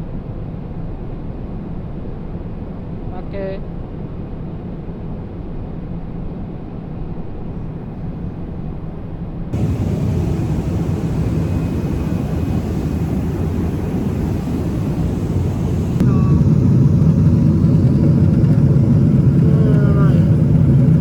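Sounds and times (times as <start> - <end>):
airliner cabin engine drone: 9.5 - 21.0.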